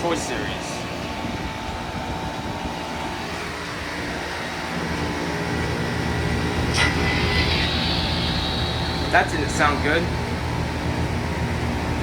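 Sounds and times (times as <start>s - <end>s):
heat pump hum with whine: 0.0s - 12.0s.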